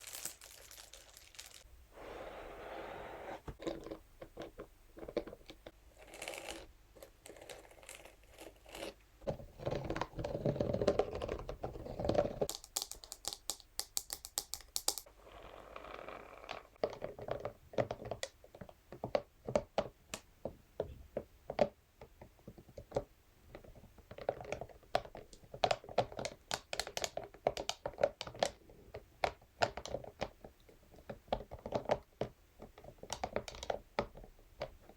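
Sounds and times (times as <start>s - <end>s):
crinkling: 0.0s - 2.6s
brush scratching and rubbing: 2.0s - 3.6s.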